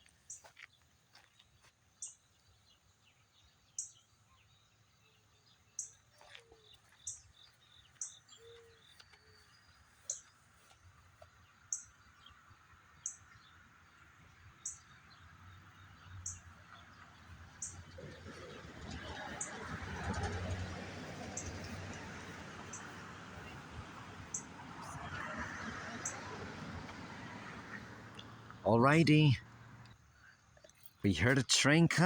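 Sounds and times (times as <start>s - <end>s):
bird chirping: 1.6s - 18.6s.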